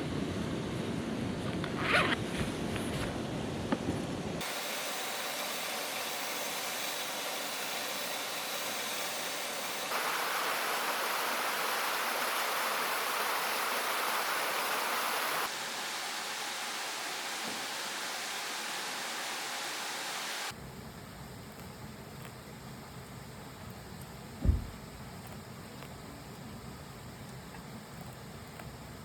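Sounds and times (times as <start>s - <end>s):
mountain stream rushing: 4.4s - 20.5s
small knocks: 24.4s - 25.9s.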